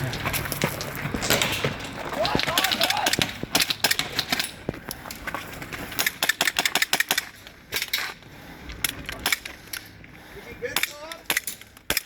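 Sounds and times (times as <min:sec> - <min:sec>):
airsoft guns firing: 0:01.2 - 0:04.6, 0:06.0 - 0:07.9, 0:10.7 - 0:12.0.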